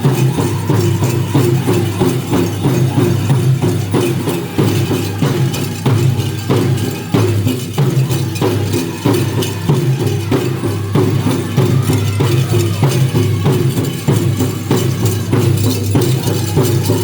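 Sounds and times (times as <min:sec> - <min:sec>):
group singing: 0:00.0 - 0:17.0
large drum steady beat: 0:00.0 - 0:17.0.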